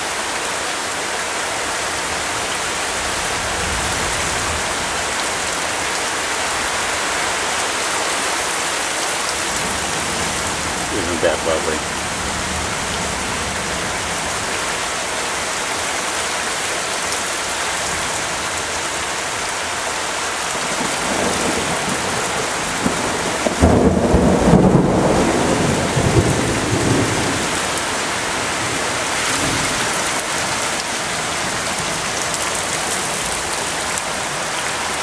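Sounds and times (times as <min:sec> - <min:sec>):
heavy rain hissing: 0:00.0 - 0:35.0
thunder rumbling: 0:20.8 - 0:30.1.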